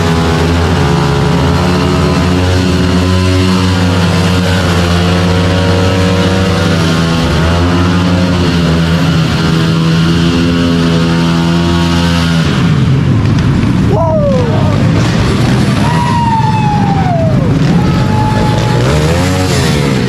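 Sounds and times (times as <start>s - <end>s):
mini bike engines running: 0.0s - 20.0s.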